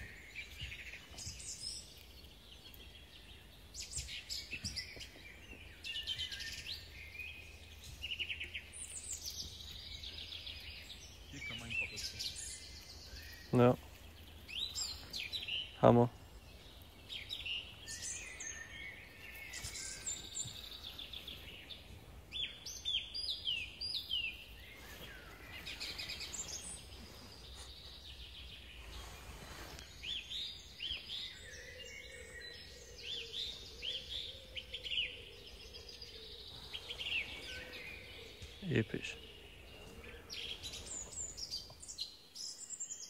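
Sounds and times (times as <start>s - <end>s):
faint outdoor background noise: 0.0s - 43.0s
small songbirds singing: 0.0s - 43.0s.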